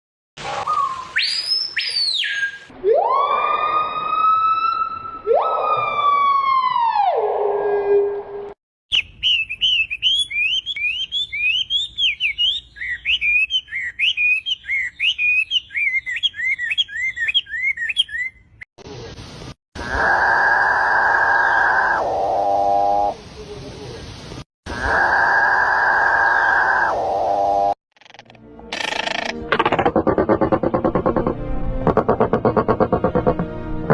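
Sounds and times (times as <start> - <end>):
bird high whistle: 0.5 - 2.7, 8.9 - 18.4
bird high chirps and tweets: 8.9 - 18.6
bird wailing calls: 19.8 - 23.1, 24.7 - 27.8.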